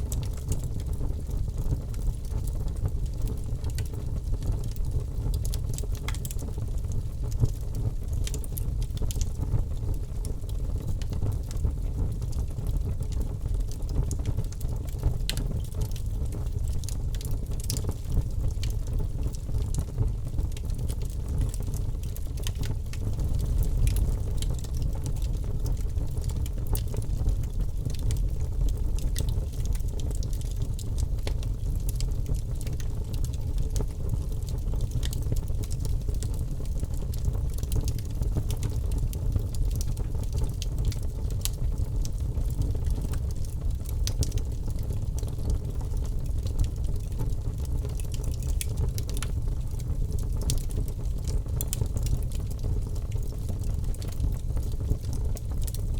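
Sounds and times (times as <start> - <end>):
campfire crackling: 12.3 - 55.9.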